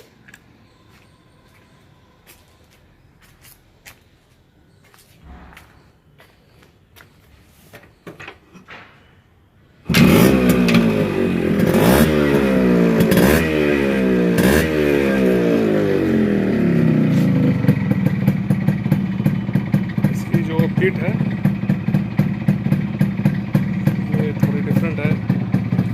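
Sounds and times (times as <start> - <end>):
motorcycle engine revving and idling: 9.8 - 25.9.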